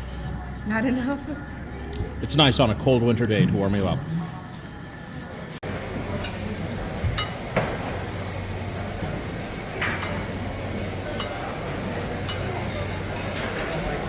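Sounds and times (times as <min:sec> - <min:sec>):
crowd chatter: 0:00.0 - 0:14.0
dishes and glasses clinking: 0:06.1 - 0:07.9, 0:09.7 - 0:14.0.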